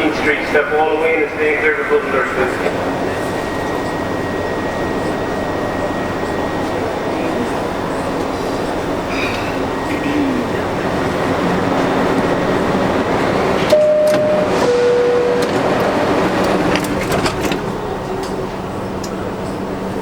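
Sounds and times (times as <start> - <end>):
subway car hum: 0.0 - 20.0
subway doors knocking: 2.7 - 20.0
two-tone door chime: 13.7 - 17.6.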